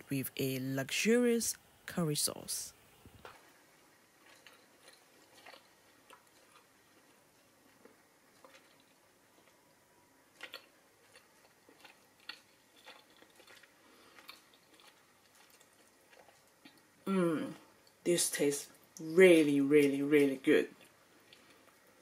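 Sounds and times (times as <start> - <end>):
chewing and mouth sounds: 3.2 - 18.0, 20.7 - 22.0.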